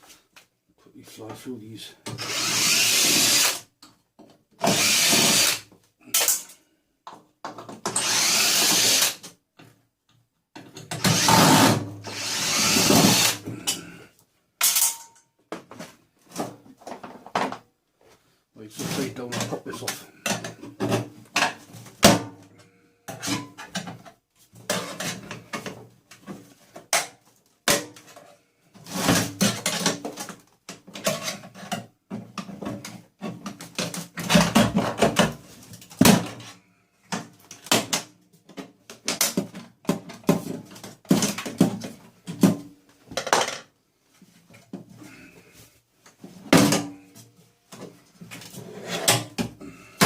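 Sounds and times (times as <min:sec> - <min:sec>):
metal and plastic clattering: 0:37.1 - 0:43.7.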